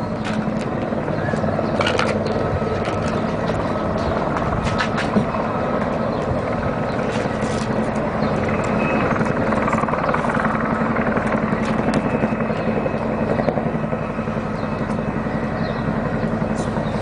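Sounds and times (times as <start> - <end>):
helicopter rotor and engine drone: 0.0 - 17.0.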